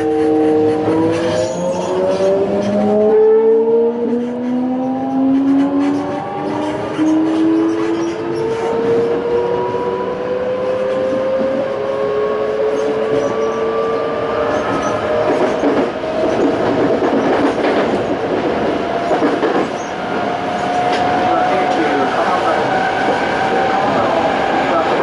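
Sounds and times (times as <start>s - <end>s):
wheels clattering on rails: 3.8s - 9.6s, 12.6s - 25.0s.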